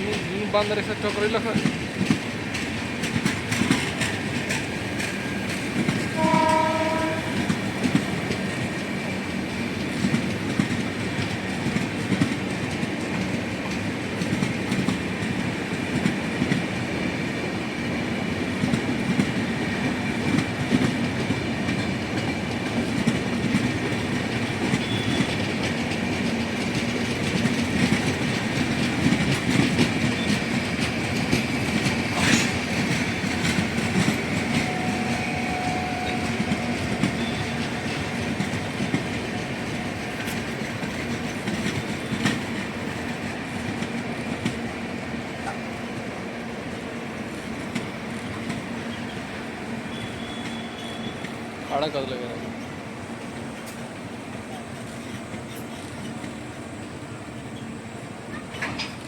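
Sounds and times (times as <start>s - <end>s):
train wheels clattering over rail joints: 0.0s - 59.0s
train horn blast: 6.1s - 7.5s, 24.8s - 25.4s, 34.6s - 37.7s.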